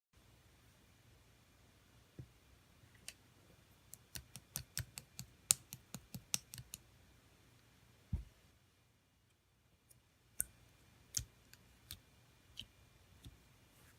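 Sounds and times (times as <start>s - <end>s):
soft low thump: 8.1s - 8.4s.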